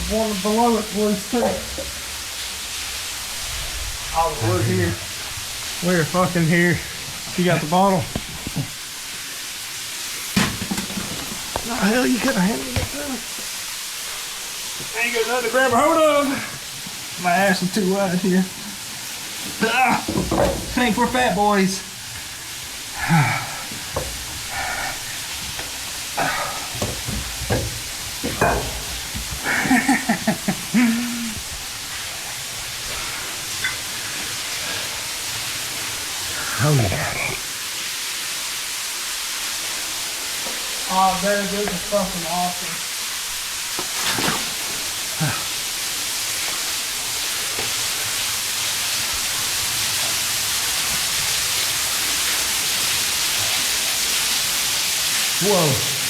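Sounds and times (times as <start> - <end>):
waterfall rushing: 0.0 - 56.0
person grunting: 23.0 - 23.7, 30.7 - 31.4, 45.2 - 45.5.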